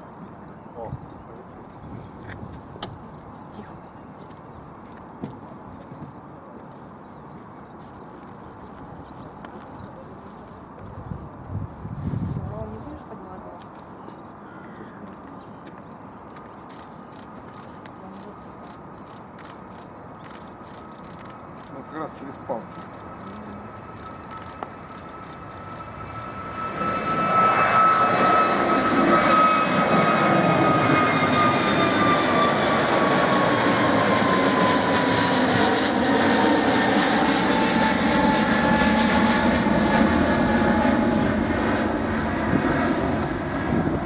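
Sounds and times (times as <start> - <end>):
jet airliner roaring overhead: 0.0 - 44.0
jet engine whine: 15.9 - 44.0.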